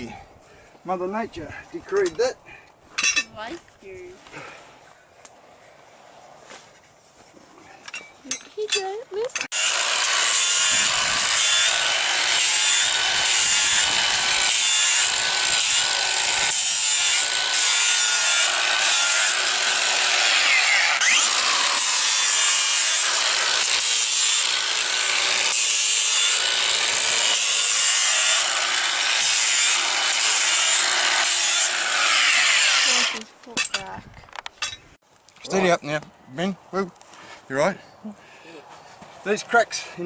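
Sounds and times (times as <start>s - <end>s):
angle grinder grinding hoof: 7.7s - 33.8s.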